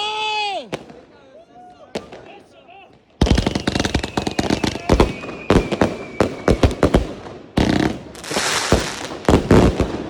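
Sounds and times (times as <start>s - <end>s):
fireworks and firecrackers banging: 0.3s - 10.0s
thin whistle: 5.1s - 6.5s.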